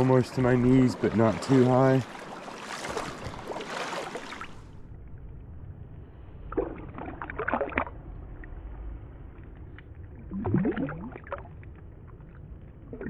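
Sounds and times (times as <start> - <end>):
boots wading through stream water: 0.0 - 4.7.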